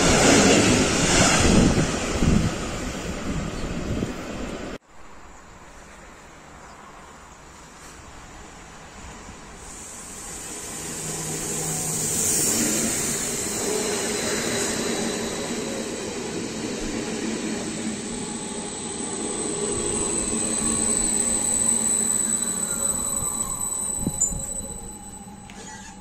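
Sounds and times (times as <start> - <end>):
electric train passing: 0.0 - 4.8, 6.3 - 26.0
high steady whine: 9.6 - 26.0.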